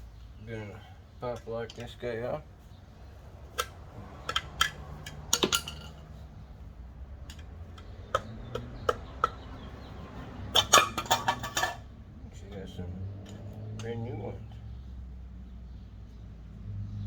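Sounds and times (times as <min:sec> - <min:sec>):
metallic clicks of hand tools: 0:03.5 - 0:06.1.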